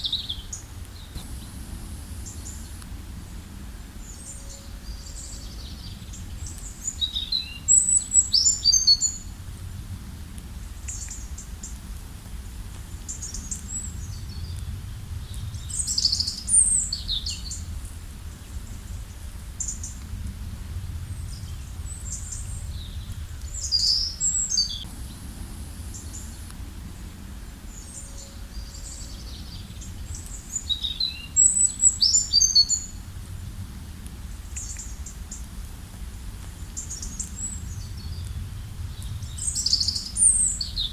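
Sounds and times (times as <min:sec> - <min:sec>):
steady low rumble: 0:00.0 - 0:08.2, 0:09.2 - 0:31.9, 0:32.8 - 0:40.9
songbirds chirping and trilling: 0:00.0 - 0:09.3, 0:21.1 - 0:33.0.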